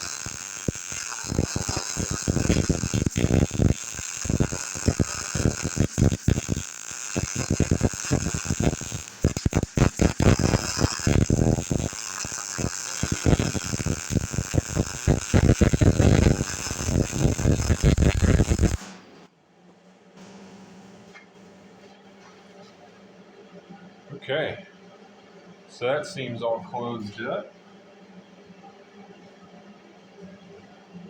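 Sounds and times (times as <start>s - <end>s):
welding arc crackling: 0.0s - 18.9s
faint steady hum: 0.0s - 20.2s.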